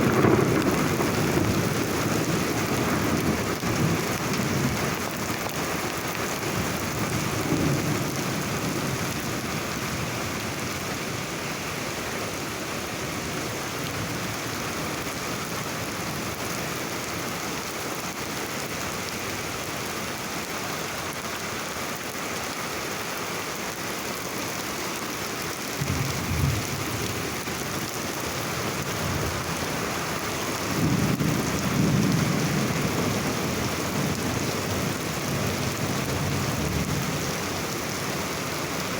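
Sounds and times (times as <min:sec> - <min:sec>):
thunder rumbling: 0:00.0 - 0:05.5, 0:25.7 - 0:37.8
heavy rain falling: 0:00.0 - 0:38.9.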